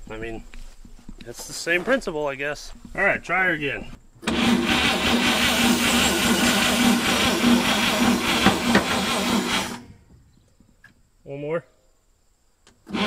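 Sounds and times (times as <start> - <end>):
truck engine cranking by starter: 4.2 - 10.1.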